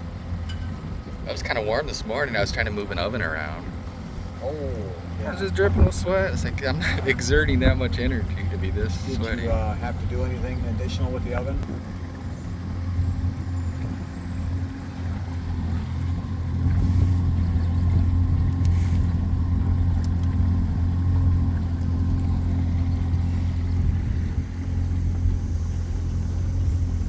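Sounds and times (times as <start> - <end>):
motorboat engine drone: 0.0 - 27.0.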